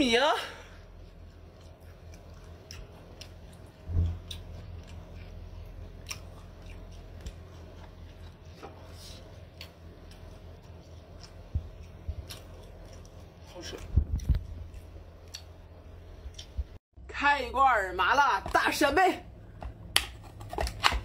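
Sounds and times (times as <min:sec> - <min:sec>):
low hum: 0:00.0 - 0:21.0
person chewing: 0:00.8 - 0:16.8.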